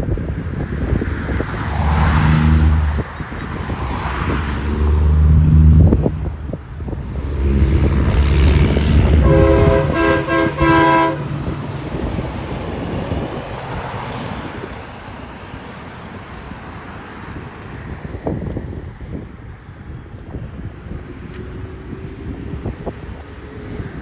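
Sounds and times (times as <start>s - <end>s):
truck engine rumble: 0.0s - 24.0s
air horn blasts: 7.1s - 11.6s.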